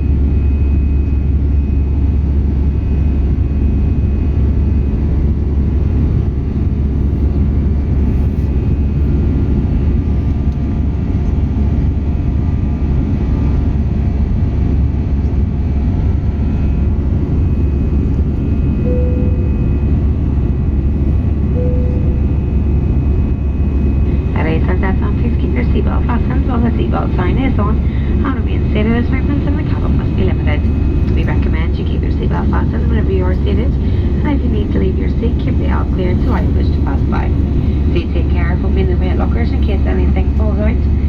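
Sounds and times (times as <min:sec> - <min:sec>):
jet engine drone in cabin: 0:00.0 - 0:41.0
short faint tones: 0:18.8 - 0:20.1, 0:21.5 - 0:22.7.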